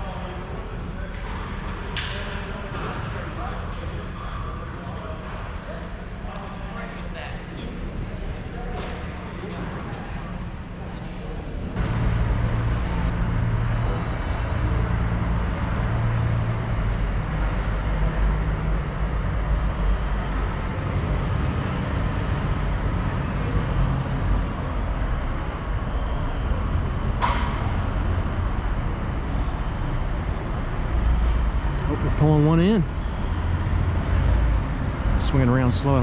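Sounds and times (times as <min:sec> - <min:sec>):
diesel truck engine running: 0:11.5 - 0:36.0.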